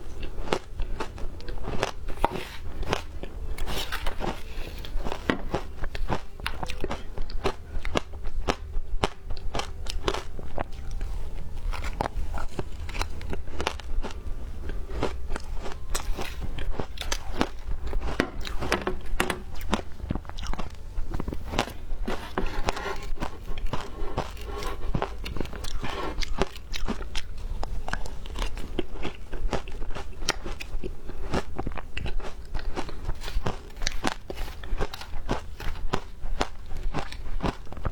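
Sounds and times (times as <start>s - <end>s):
crunching shaved ice: 0.1s - 37.9s.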